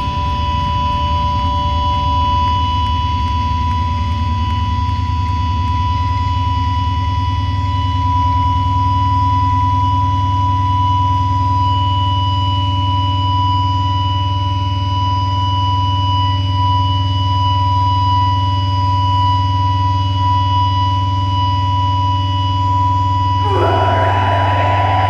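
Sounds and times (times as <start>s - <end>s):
heavy low hum: 23.4s - 25.0s
steady electronic tone: 23.4s - 25.0s.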